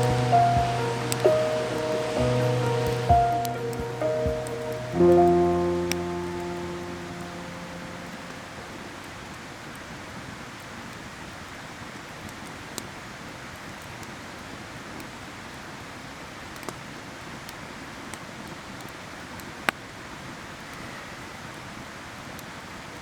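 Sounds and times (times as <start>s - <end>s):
campfire crackling and popping: 0.0s - 9.8s
stream water rushing: 0.0s - 12.0s.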